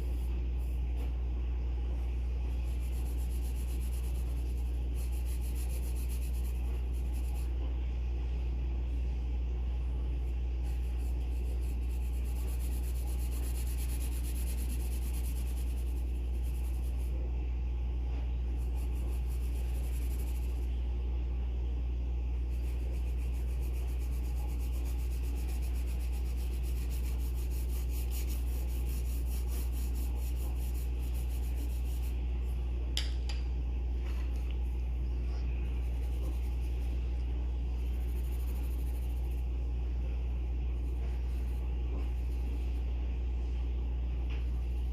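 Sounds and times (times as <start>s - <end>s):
pencil scratching on paper: 0.0s - 1.1s, 2.2s - 7.7s, 10.2s - 17.3s, 18.4s - 20.7s, 22.4s - 32.5s, 35.4s - 39.6s, 40.6s - 43.0s, 44.4s - 44.9s
steady low hum: 0.0s - 44.9s.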